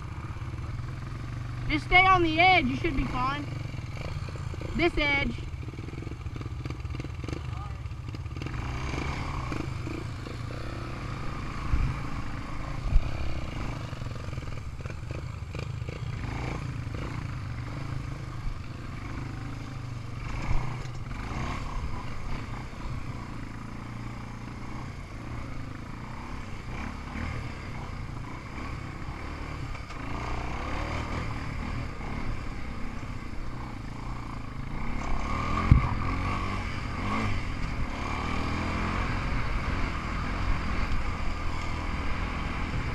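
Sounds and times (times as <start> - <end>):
single-cylinder engine running: 0.0 - 42.9
sharp engine knocks and clatter: 11.8 - 17.9, 18.6 - 22.5, 33.0 - 38.7.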